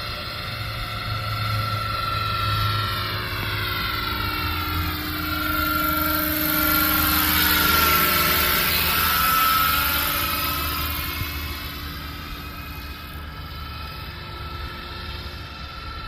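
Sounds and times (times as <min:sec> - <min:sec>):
model helicopter motor and rotor: 0:00.0 - 0:16.0.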